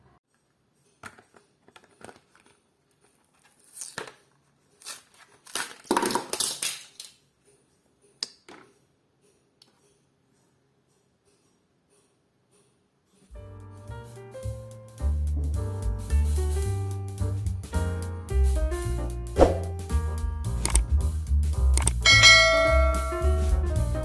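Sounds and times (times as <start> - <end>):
plastic packaging crinkling: 4.8 - 7.2
sharp click: 20.6 - 20.9, 21.8 - 22.1.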